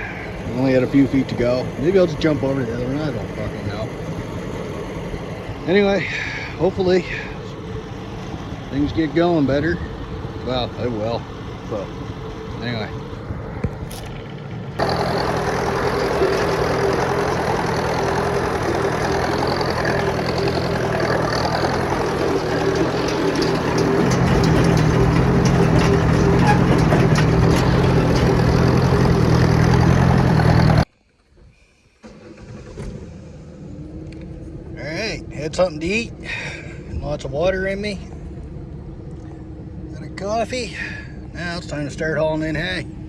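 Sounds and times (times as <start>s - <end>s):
tractor engine running: 0.0s - 30.9s.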